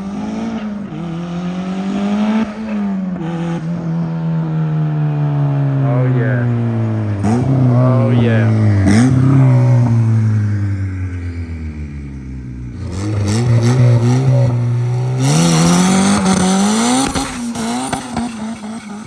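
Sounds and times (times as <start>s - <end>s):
car engine revving: 0.0s - 19.0s
tires spinning hiss: 6.3s - 19.0s.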